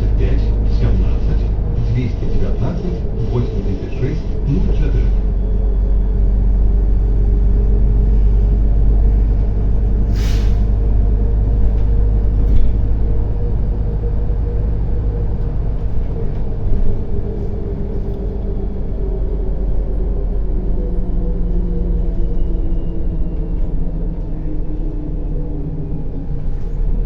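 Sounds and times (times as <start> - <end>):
bus engine drone: 0.0 - 27.0
compressed air hiss: 10.1 - 10.7.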